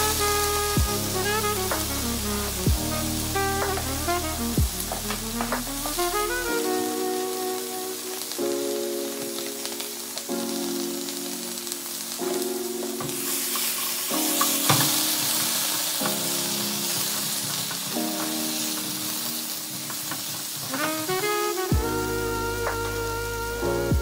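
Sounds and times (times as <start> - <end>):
background music with held chords: 0.0 - 24.0
potatoes sizzling in oil: 7.6 - 23.0
utensil tapping pan: 14.3 - 16.2.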